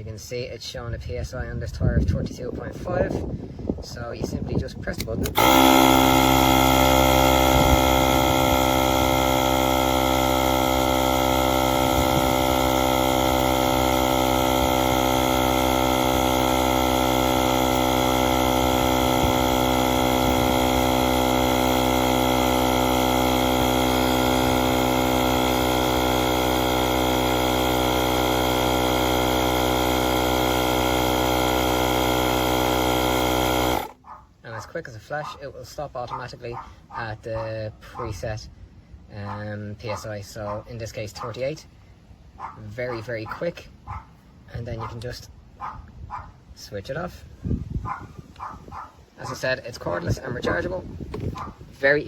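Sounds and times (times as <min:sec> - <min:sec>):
air compressor humming: 0:05.1 - 0:34.1.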